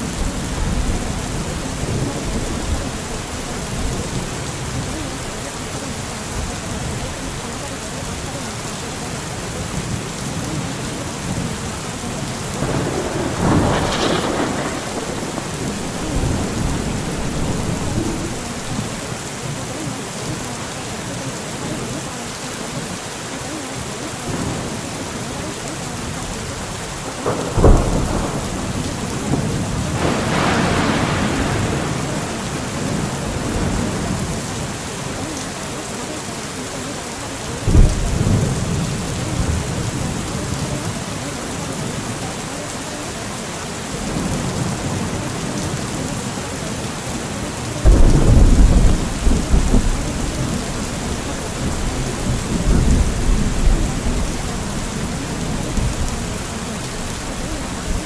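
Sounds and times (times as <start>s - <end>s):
thunder rumbling: 0.0s - 8.3s, 9.0s - 20.5s, 24.2s - 35.5s, 37.6s - 42.5s, 44.0s - 58.0s
steady rain: 0.0s - 58.0s
sharp thunderclaps: 12.4s - 19.0s, 27.2s - 34.3s, 37.6s - 40.6s, 47.8s - 58.0s.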